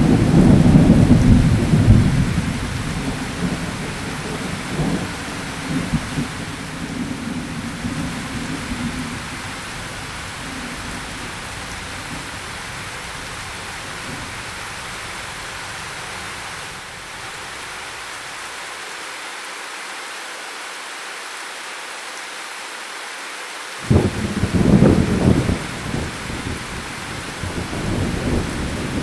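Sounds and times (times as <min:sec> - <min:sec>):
low thunder rumble: 0:00.0 - 0:16.7, 0:23.8 - 0:29.0
heavy rain hissing: 0:00.0 - 0:29.0.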